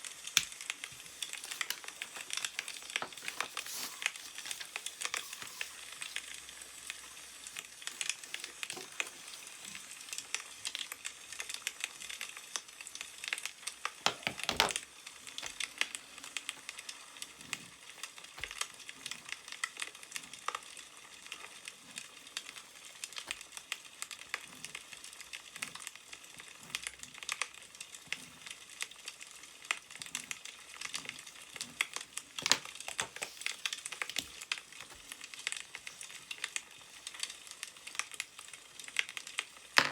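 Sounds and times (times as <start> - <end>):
wood fire crackling and popping: 0.0 - 39.9
newspaper rustling: 0.4 - 10.3, 32.2 - 38.0.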